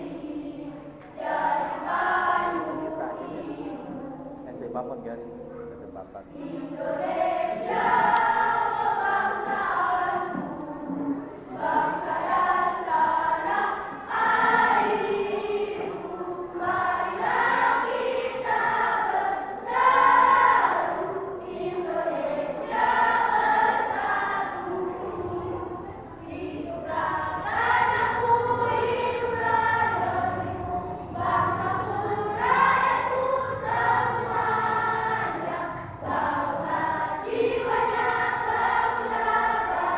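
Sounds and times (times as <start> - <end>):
children's choir singing: 0.0 - 39.9.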